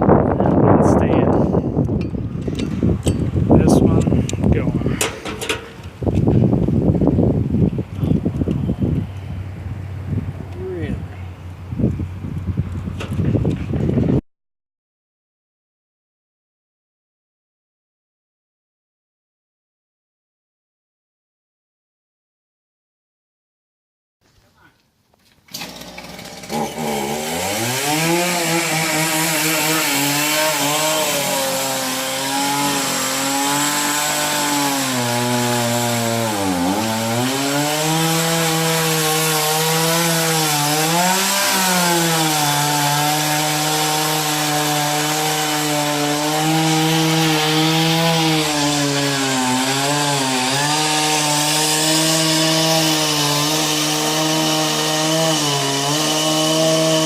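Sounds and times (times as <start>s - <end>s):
chainsaw cutting wood: 1.1s - 6.6s, 25.2s - 57.0s.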